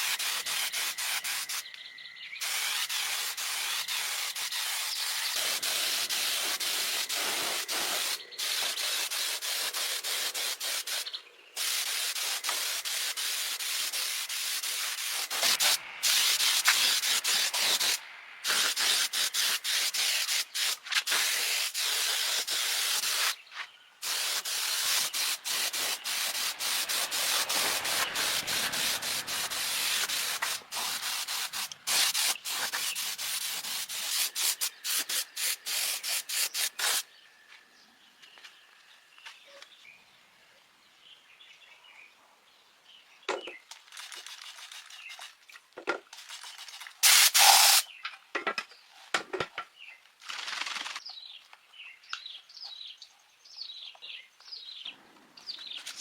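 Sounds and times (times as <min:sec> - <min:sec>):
air spray gun hissing bursts: 0:00.0 - 0:01.7, 0:02.4 - 0:23.4, 0:24.0 - 0:37.0, 0:47.0 - 0:47.9.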